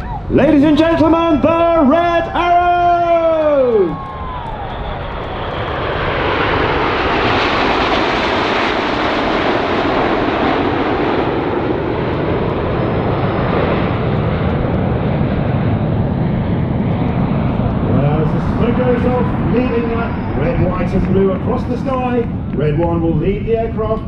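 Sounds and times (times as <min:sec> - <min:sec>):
jets flying past roaring: 0:00.0 - 0:24.0.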